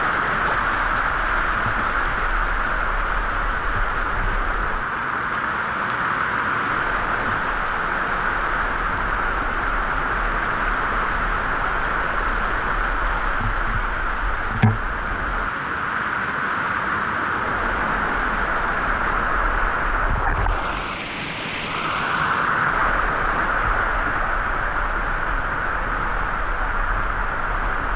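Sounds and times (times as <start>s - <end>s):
knock: 14.5s - 14.8s
waterfall rushing: 20.0s - 22.6s.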